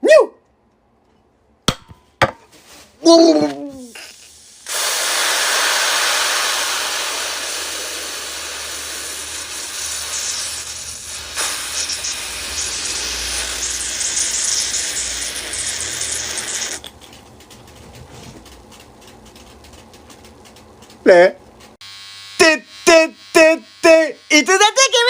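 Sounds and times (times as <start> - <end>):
pressurized spray hissing: 4.0 - 16.8.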